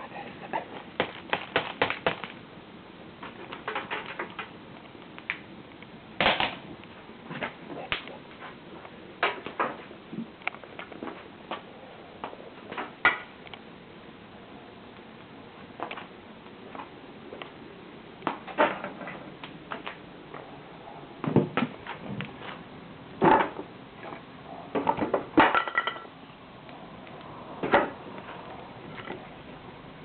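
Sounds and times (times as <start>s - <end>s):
bonfire crackling: 0.2s - 11.6s
burning wood pops: 3.2s - 8.1s.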